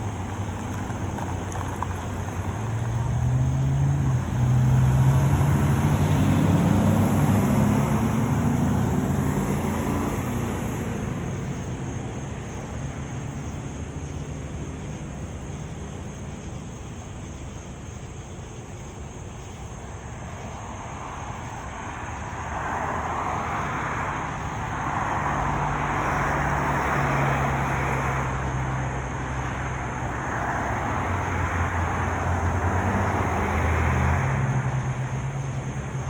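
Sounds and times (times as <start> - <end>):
low steady engine hum: 0.0 - 36.0
vehicles passing: 0.0 - 36.0.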